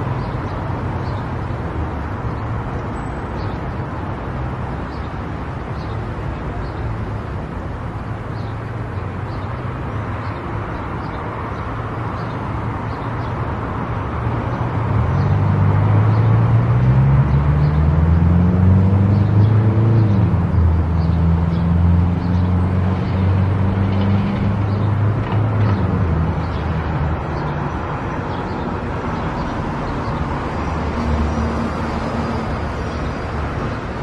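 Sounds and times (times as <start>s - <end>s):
tyre and road noise: 0.0s - 34.0s.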